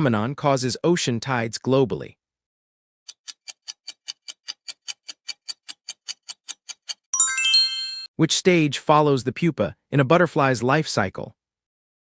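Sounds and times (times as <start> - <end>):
fast clock ticking: 3.1 - 7.1
high chime: 7.2 - 8.1.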